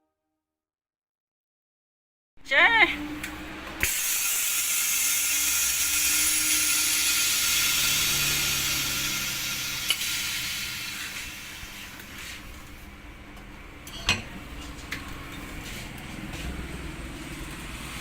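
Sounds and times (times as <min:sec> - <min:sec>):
hot-air blower hissing: 0:02.9 - 0:13.1.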